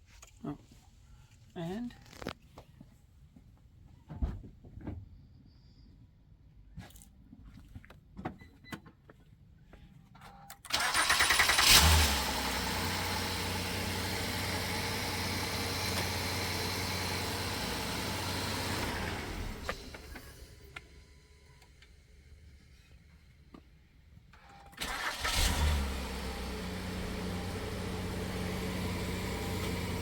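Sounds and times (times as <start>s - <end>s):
car engine starting and idling: 10.5s - 23.5s, 24.4s - 30.0s.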